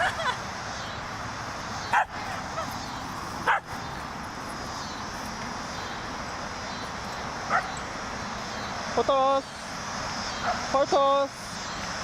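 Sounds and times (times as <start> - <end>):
steady background hiss: 0.0 - 12.0
dog barking: 1.9 - 2.3, 3.4 - 3.8, 7.5 - 7.8, 10.4 - 10.7.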